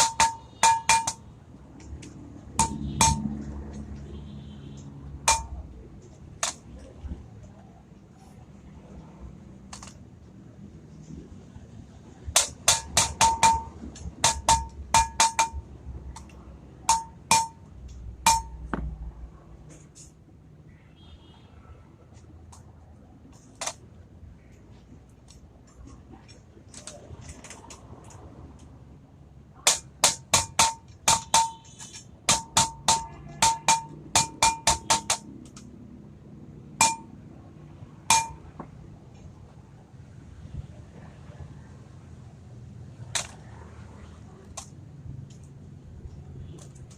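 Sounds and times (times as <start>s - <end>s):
hammer striking metal: 0.0s - 1.3s, 2.5s - 3.4s, 5.2s - 5.6s, 12.3s - 18.9s, 29.6s - 35.3s, 36.8s - 37.2s, 38.0s - 38.7s.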